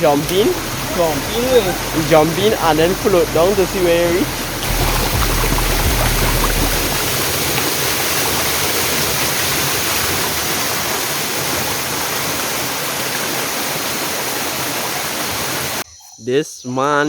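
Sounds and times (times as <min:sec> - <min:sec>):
stream rushing over a drop: 0:00.0 - 0:15.8.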